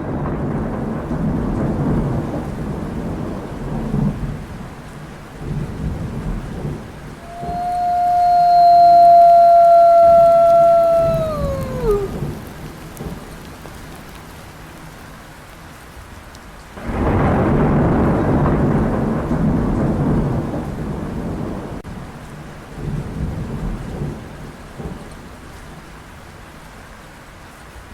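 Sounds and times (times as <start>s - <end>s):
thunder rumbling: 0.0s - 4.6s, 5.4s - 13.3s, 16.8s - 21.8s
steady rain: 0.0s - 27.9s.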